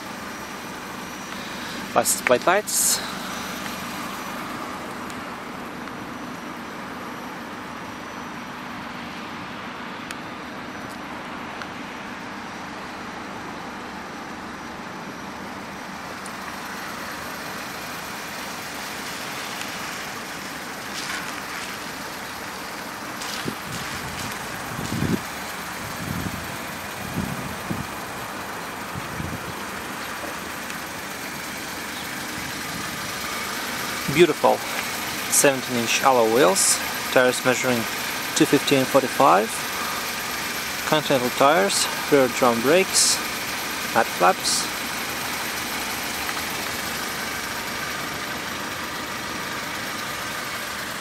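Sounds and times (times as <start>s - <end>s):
car engine idling: 0.0s - 51.0s
dull low thumps: 23.4s - 26.5s.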